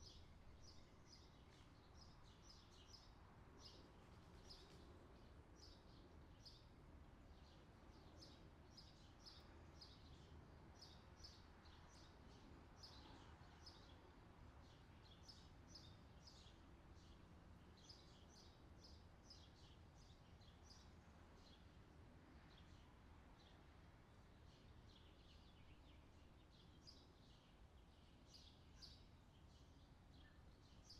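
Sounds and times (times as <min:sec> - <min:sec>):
small birds chirping: 0:07.3 - 0:30.9.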